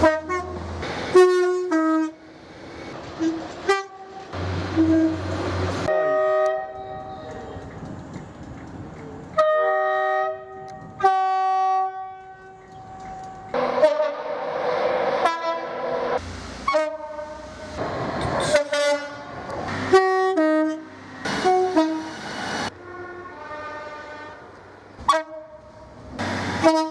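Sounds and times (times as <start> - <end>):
train horn blasts: 0.0 - 2.3, 3.2 - 7.7, 9.4 - 14.6, 15.2 - 16.0, 16.6 - 17.4, 18.2 - 22.1, 22.7 - 25.9, 26.6 - 26.9
train running noise: 0.0 - 26.9.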